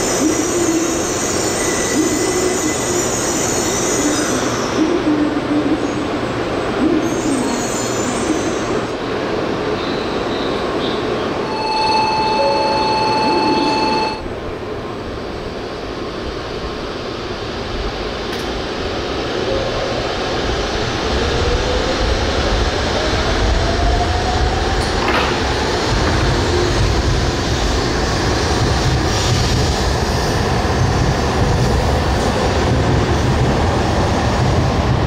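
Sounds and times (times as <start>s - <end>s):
train standing at platform: 0.0s - 35.0s
electronic multi-pitch tone: 11.4s - 14.2s.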